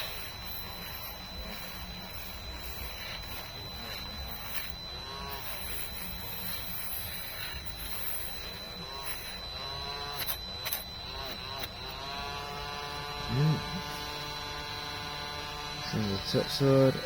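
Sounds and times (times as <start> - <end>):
rotary power tool buzzing: 0.0 - 17.0.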